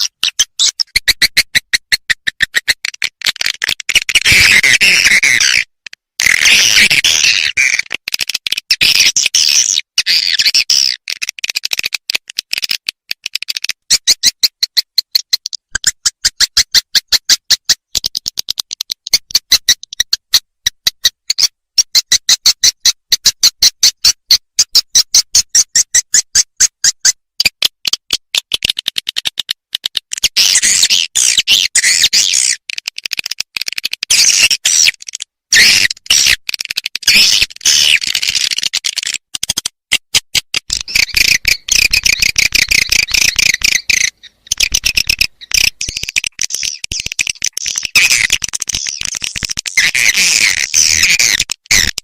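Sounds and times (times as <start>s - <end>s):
high fast bird chattering: 0.0s - 27.2s, 30.2s - 39.6s, 40.7s - 52.0s
sharp clicks: 7.6s - 9.3s, 10.3s - 21.4s, 25.6s - 52.0s.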